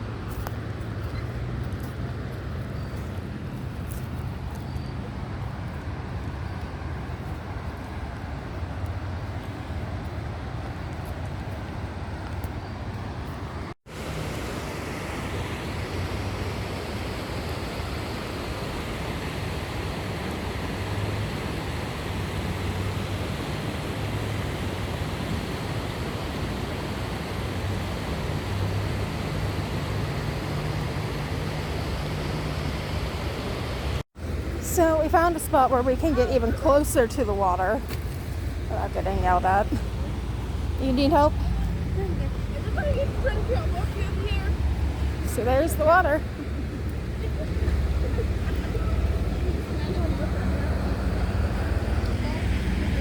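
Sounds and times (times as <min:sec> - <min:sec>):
river rushing: 0:12.8 - 0:53.0.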